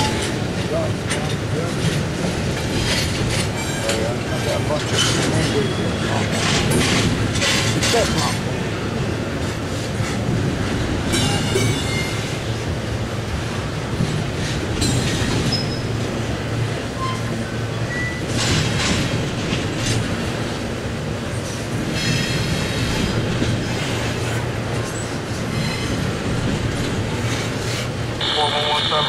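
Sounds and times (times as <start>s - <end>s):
train wheels rumbling on rail: 0.0s - 29.0s
high-pitched wheel squeals: 17.0s - 18.2s.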